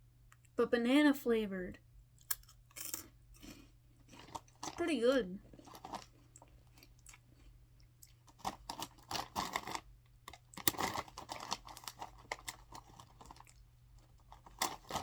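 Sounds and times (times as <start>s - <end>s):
plastic bag crinkling: 4.2s - 4.8s, 5.4s - 6.9s, 8.2s - 15.0s.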